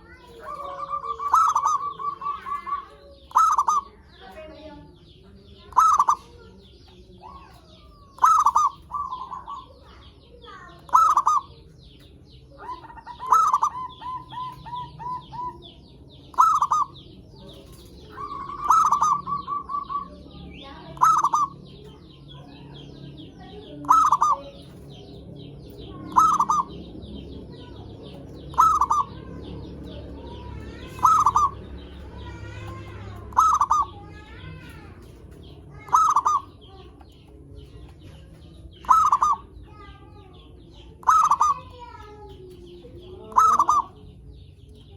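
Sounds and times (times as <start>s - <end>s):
dove cooing: 0.0s - 4.5s, 5.6s - 6.4s, 7.2s - 39.8s, 40.8s - 44.2s
small birds chirping: 0.0s - 44.9s.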